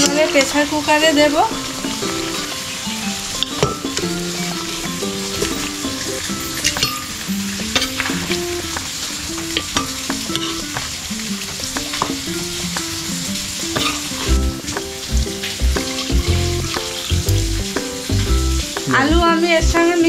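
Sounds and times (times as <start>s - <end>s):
meat sizzling in a pan: 0.0s - 19.2s
light background music: 0.0s - 20.0s
spoon scraping pan: 3.4s - 10.9s, 13.7s - 14.2s
low thumps: 14.3s - 19.8s.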